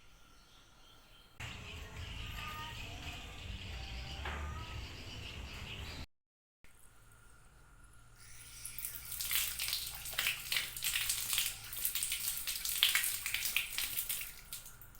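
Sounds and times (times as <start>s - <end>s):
running water splashing: 8.2s - 14.9s.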